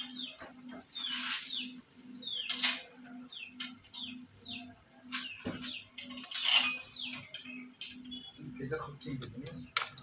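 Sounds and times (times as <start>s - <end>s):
birds chirping: 0.0s - 10.0s
sharp clicks: 9.0s - 10.0s.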